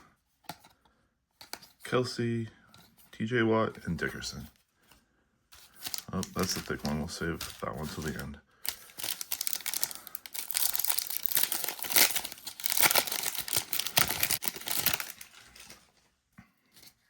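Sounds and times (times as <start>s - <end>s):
cards being handled: 0.0s - 0.8s, 3.7s - 16.0s
foil wrapper ripping and crinkling: 5.6s - 15.9s.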